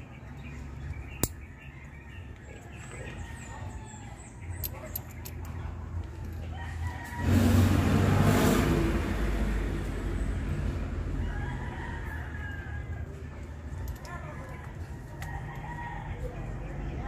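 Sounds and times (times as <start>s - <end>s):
rooster crowing: 6.6s - 7.7s, 11.1s - 13.2s.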